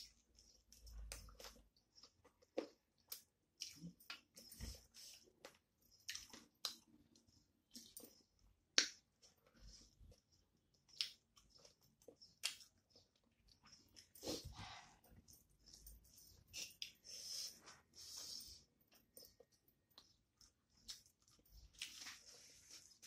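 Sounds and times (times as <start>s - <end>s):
close-up chewing with mouth smacks: 0.0s - 17.1s.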